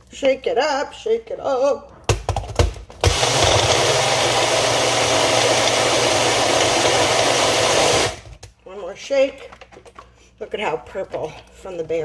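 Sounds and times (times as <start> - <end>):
blender motor churning: 3.0 - 8.4.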